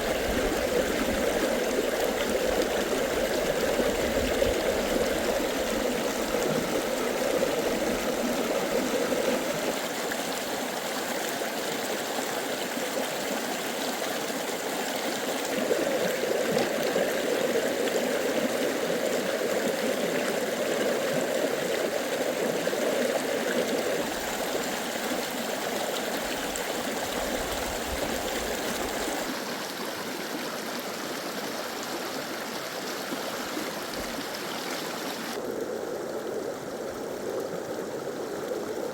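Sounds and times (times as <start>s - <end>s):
stream rushing: 0.0s - 38.9s.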